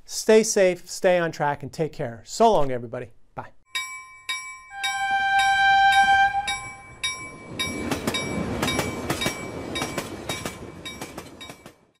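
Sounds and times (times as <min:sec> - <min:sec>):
ringing bell-like tone: 0:03.7 - 0:11.6
clanking strikes: 0:03.8 - 0:11.8
train rumbling by: 0:04.8 - 0:12.0.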